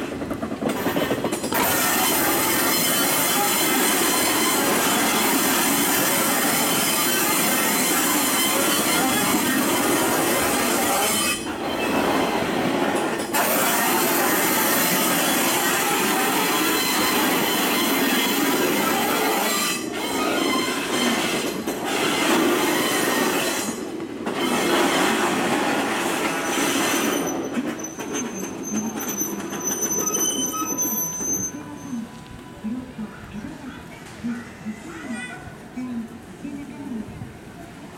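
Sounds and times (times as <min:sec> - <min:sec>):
train rumble and rattle: 0:00.0 - 0:37.9
high wheel squeal: 0:01.5 - 0:12.3, 0:13.4 - 0:23.8, 0:26.2 - 0:32.0.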